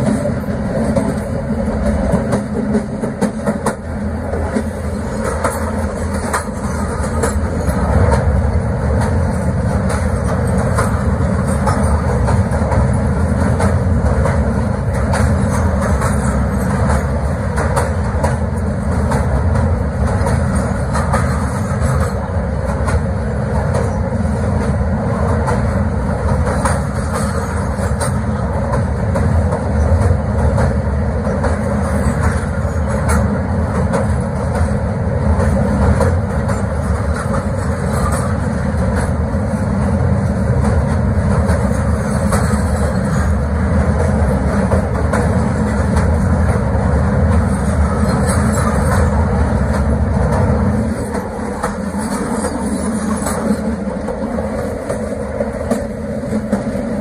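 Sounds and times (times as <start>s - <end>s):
train wheels rumbling on bridge: 0.0s - 57.0s.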